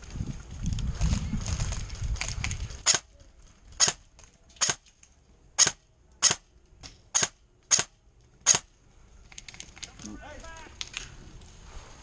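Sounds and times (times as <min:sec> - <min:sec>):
rustle of movement: 0:00.0 - 0:12.0
airsoft gun shots: 0:05.6 - 0:06.4, 0:07.1 - 0:08.7.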